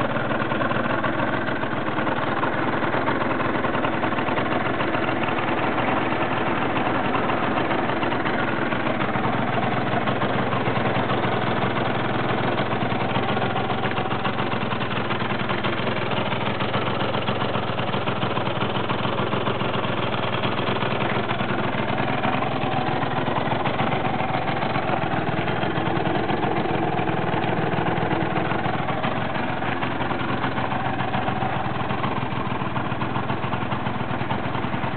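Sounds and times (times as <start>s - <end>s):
scooter engine idling: 0.0s - 34.9s.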